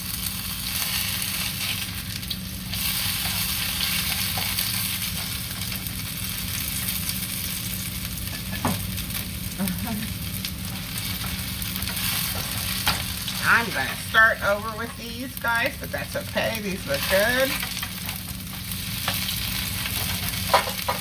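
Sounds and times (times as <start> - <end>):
fritters sizzling in a pan: 0.0 - 21.0
spatula scraping and tapping pan: 19.9 - 21.0.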